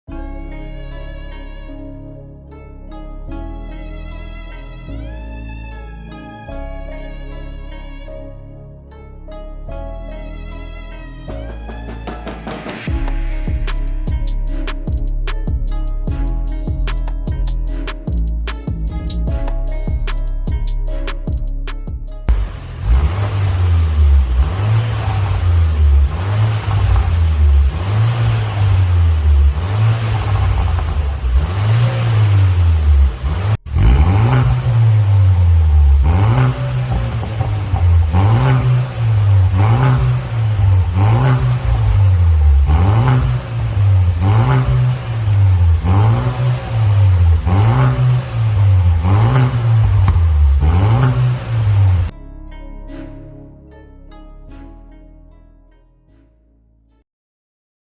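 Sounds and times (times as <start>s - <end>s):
car engine revving: 12.1s - 52.1s.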